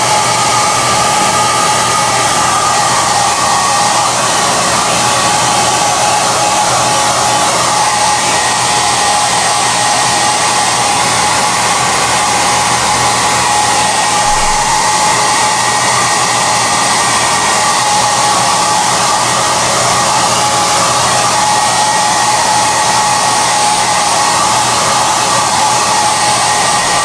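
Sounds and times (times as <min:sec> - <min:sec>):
hair dryer running: 0:00.0 - 0:27.0.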